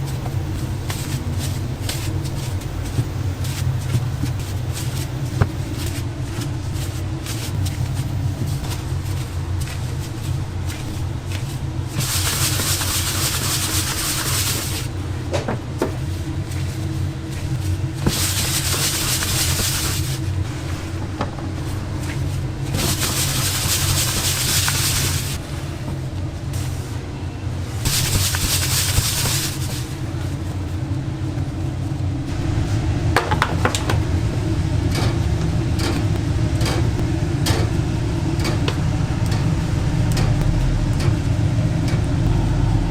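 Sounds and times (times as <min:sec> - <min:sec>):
low machine hum: 0:00.0 - 0:42.9
loud hissing: 0:21.6 - 0:25.4.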